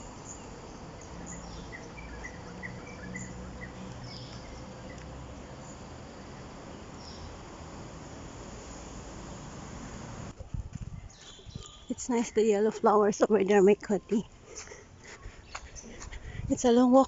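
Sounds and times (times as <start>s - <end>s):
descending bird calls: 0.0s - 7.5s
insect drone: 0.0s - 10.4s.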